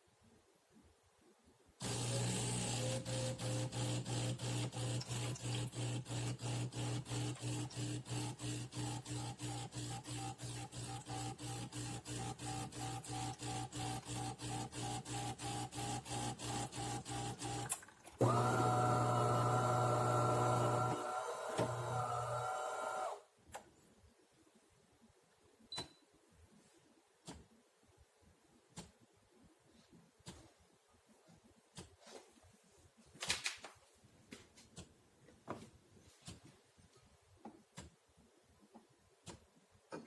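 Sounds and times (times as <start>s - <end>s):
espresso machine pulsing: 1.8s - 23.2s.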